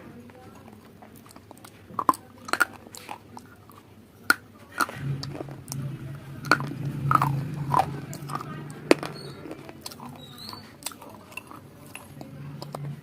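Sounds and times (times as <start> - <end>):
crunchy food being chewed: 0.1 - 13.0
steady low hum: 4.8 - 13.0.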